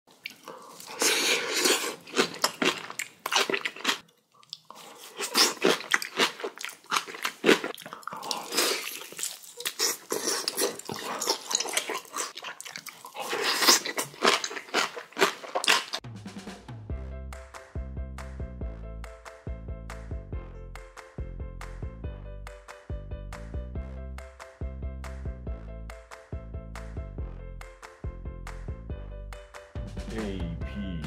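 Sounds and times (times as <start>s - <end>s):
person crunching food: 0.1s - 16.0s.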